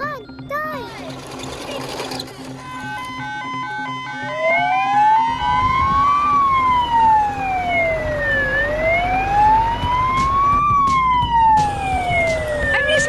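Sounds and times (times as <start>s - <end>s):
fire truck siren wailing: 2.6s - 13.0s.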